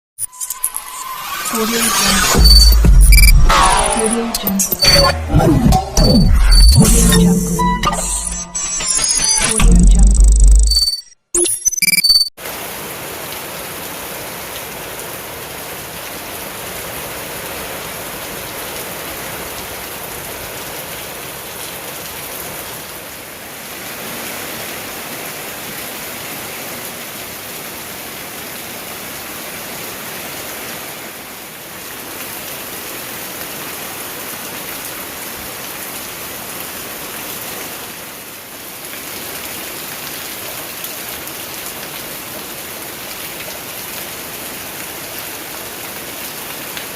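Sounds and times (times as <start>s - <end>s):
heavy rain pouring: 12.4s - 46.9s.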